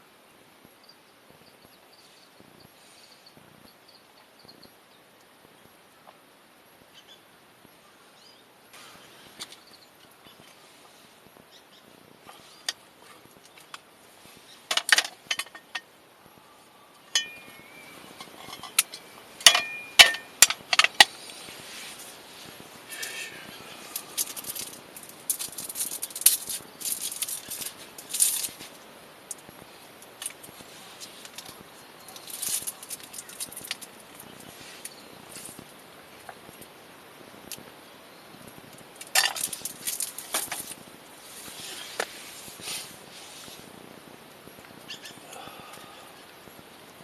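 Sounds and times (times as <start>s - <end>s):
rustling: 12.2s - 36.6s, 38.5s - 43.9s
small hard objects clicking: 22.9s - 29.5s, 30.1s - 35.6s, 38.7s - 40.8s.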